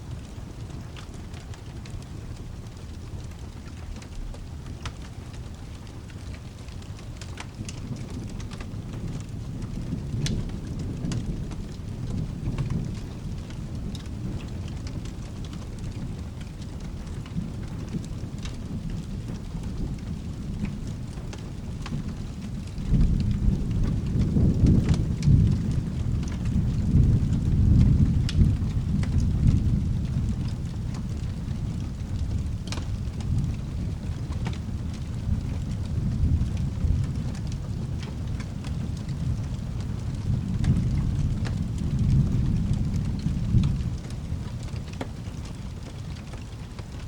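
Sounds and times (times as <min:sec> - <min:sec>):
steady rain: 0:00.0 - 0:47.0
thunder rumbling: 0:01.8 - 0:46.5.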